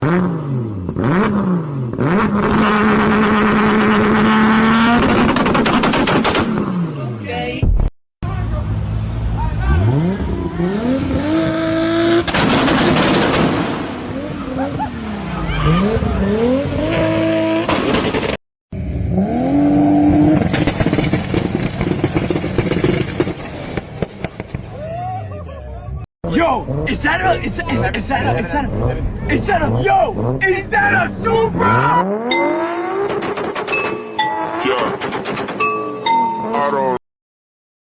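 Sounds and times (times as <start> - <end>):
car engine revving: 0.0 - 7.1, 8.4 - 24.6, 26.2 - 35.6
exhaust crackling and popping: 4.9 - 6.7, 20.3 - 24.7.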